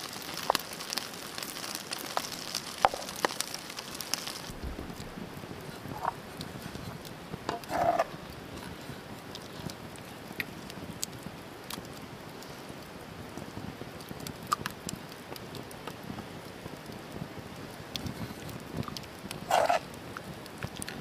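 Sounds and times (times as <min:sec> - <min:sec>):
campfire crackling and popping: 0:00.0 - 0:21.0
low steady hiss: 0:00.0 - 0:21.0.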